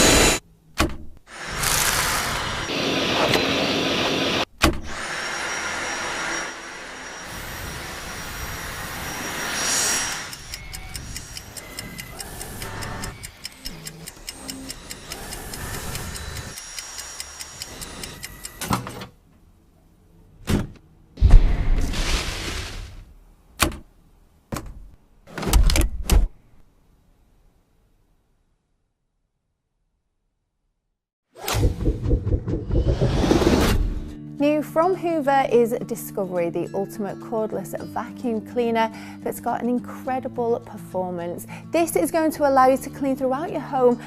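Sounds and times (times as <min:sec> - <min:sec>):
vacuum cleaner running: 0:00.0 - 0:00.4, 0:01.3 - 0:10.6
rapid mechanical clicks: 0:10.3 - 0:18.7.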